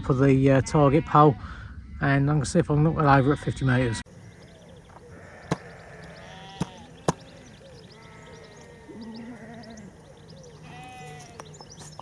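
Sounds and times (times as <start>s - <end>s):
sheep bleating: 3.1s - 11.5s.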